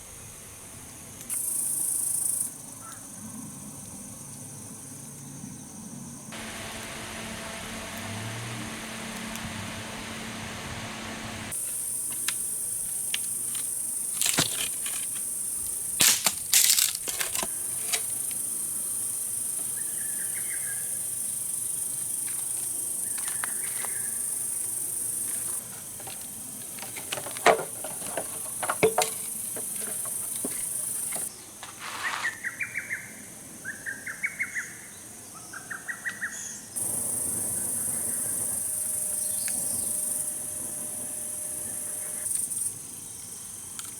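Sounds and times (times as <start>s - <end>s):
insects chirring: 1.3s - 31.4s, 36.8s - 43.9s
sharp cracks: 16.0s - 17.5s.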